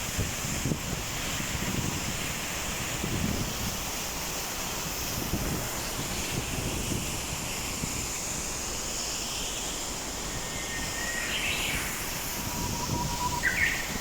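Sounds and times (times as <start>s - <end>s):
wind buffeting microphone: 0.0s - 3.9s, 4.8s - 8.3s, 11.5s - 14.0s
waterfall rushing: 0.0s - 14.0s
high bird chirps: 10.6s - 14.0s.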